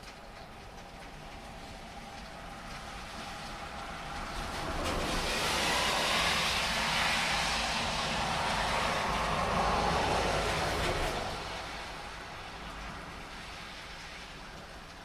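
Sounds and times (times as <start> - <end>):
heavy rain: 0.0 - 15.0
tyres hissing on wet road: 0.6 - 15.0.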